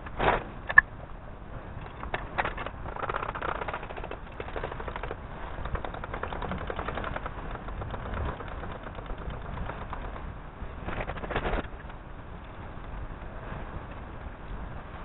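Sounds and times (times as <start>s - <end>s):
rapid mechanical rattle: 1.5s - 12.0s.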